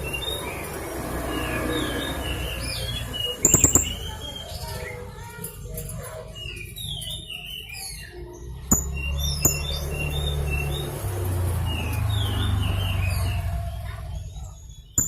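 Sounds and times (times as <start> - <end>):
parrot chirping: 0.0 - 5.0
sharp clicks: 3.5 - 4.1.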